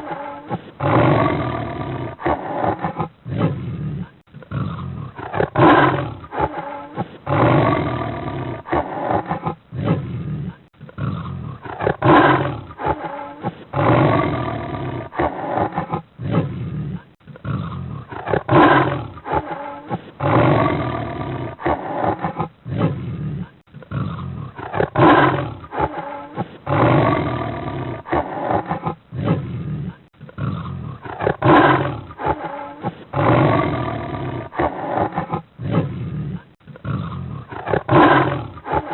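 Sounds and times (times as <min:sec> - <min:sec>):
big cat roaring and growling: 0:00.0 - 0:38.9.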